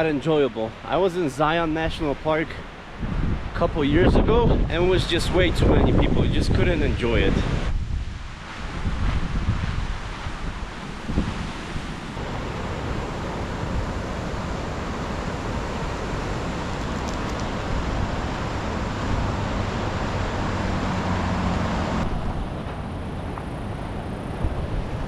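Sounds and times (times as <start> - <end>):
vehicle passing on road: 12.2 - 24.3.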